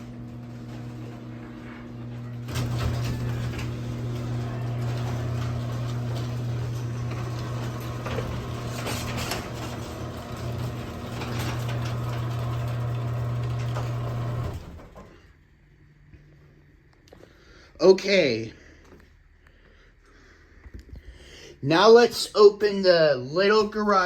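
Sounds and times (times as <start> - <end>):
garage door opener motor hum: 0.0 - 15.4.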